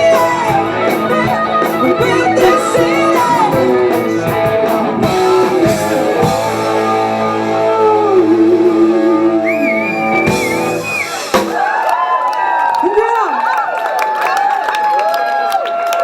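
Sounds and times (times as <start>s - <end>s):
electric guitar chord: 0.0s - 10.8s
drum hits: 10.3s - 11.6s.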